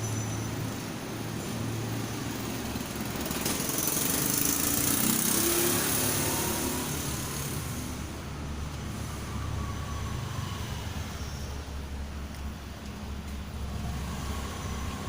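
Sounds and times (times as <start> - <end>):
small engine running: 2.8 - 7.9.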